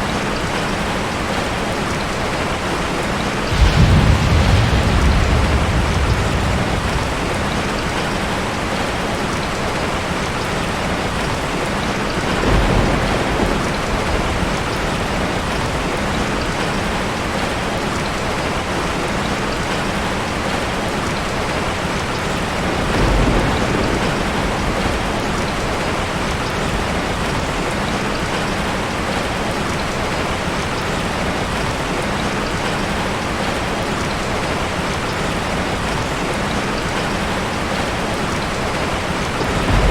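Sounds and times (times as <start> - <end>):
steady rain falling: 0.0 - 39.9
low rumbles: 3.4 - 9.0, 39.2 - 39.9.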